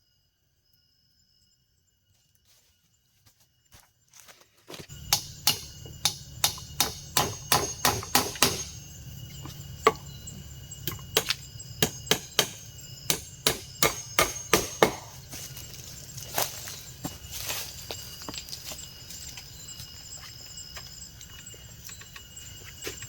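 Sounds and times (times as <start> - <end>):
hand tool striking wood: 5.0 - 8.8, 10.8 - 15.4.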